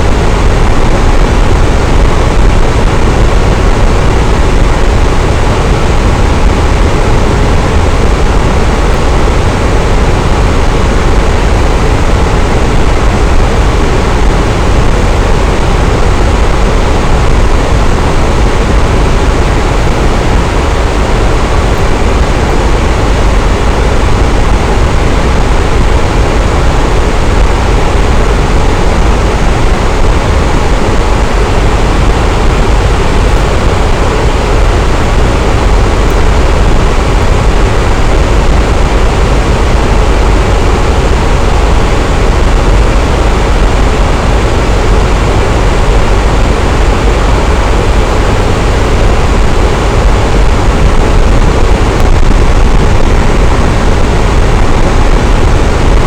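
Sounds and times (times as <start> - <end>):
electric fan whooshing: 0.0 - 56.0.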